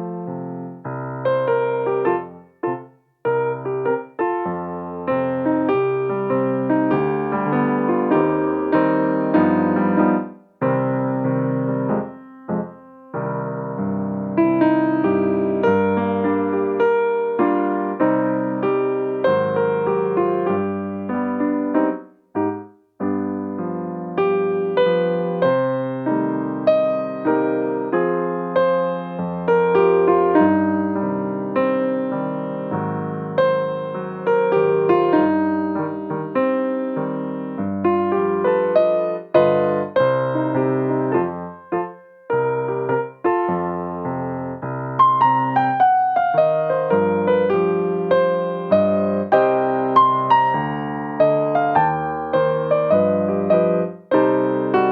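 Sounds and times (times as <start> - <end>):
piano playing slow chords: 0.0 - 54.9.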